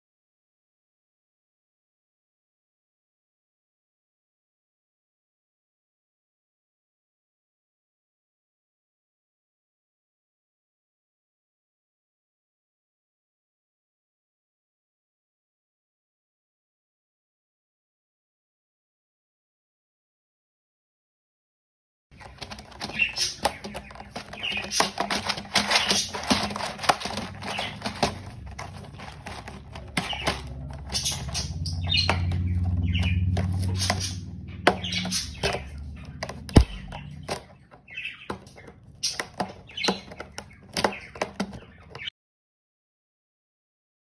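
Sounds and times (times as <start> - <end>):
bird flapping wings: 22.2 - 31.6
clicks and knocks: 22.2 - 42.0
bird chirps: 22.2 - 42.1.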